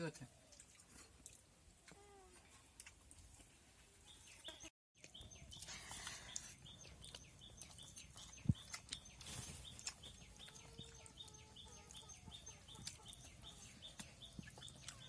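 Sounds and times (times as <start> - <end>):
bird chirping: 4.0 - 15.0.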